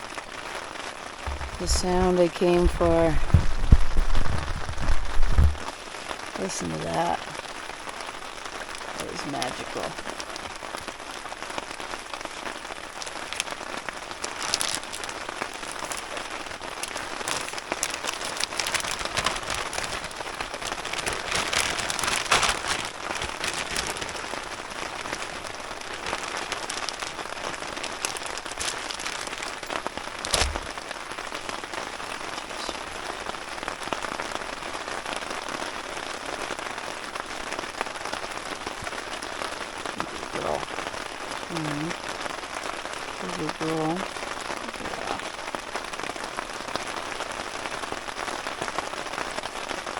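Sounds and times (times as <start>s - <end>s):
rain falling: 0.0s - 49.9s
sharp thump: 30.3s - 30.7s.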